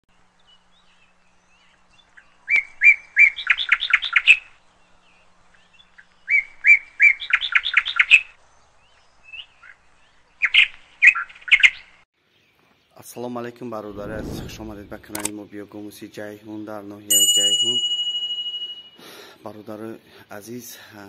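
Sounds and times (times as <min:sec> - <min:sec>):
bird song: 0:00.1 - 0:17.1.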